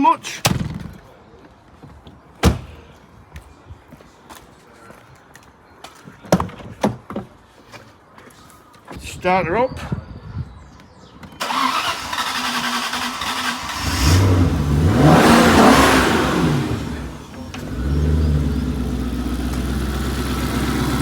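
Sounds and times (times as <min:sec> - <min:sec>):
car engine starting and revving: 0:11.4 - 0:21.0.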